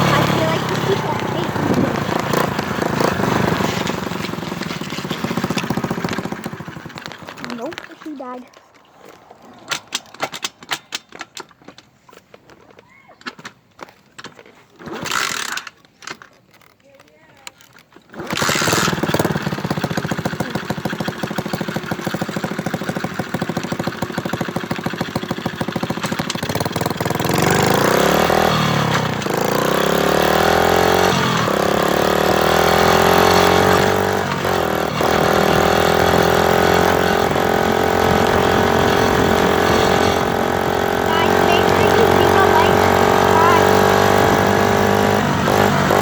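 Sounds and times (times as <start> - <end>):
motorcycle engine idling and revving: 0.0 - 11.9, 14.8 - 15.9, 16.6 - 46.0.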